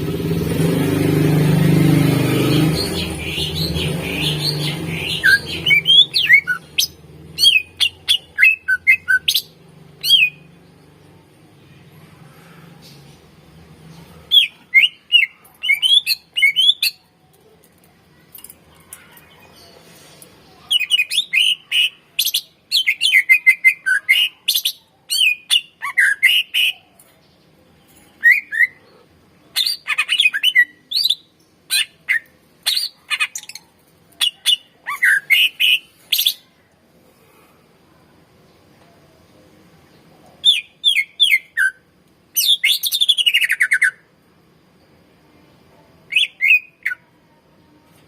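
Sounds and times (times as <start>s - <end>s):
bird singing chirps and warbles: 2.2s - 17.2s, 38.5s - 44.0s, 46.1s - 48.0s.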